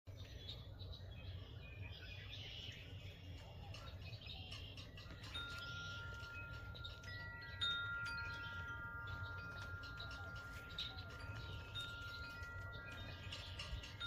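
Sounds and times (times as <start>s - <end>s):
wind chimes ringing: 3.4s - 14.0s.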